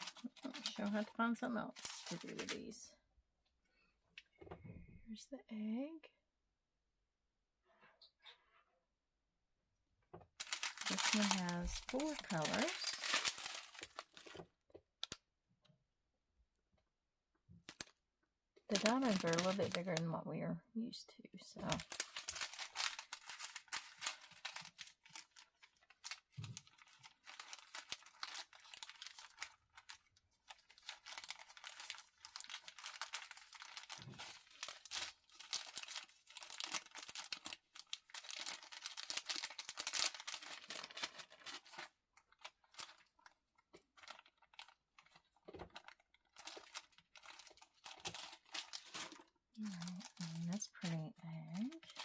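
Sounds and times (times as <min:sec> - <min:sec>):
plastic packaging crinkling: 0:00.0 - 0:02.9, 0:10.4 - 0:15.2, 0:17.6 - 0:18.0, 0:18.7 - 0:20.1, 0:21.5 - 0:52.0.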